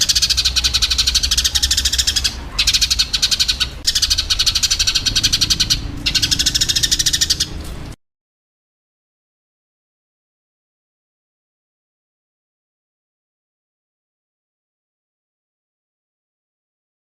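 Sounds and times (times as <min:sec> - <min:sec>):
sparrows chirping rapidly: 0:00.0 - 0:08.0.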